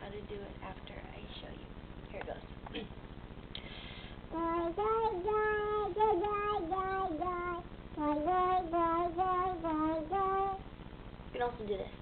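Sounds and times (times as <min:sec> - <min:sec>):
girl breathing: 0:03.6 - 0:04.3.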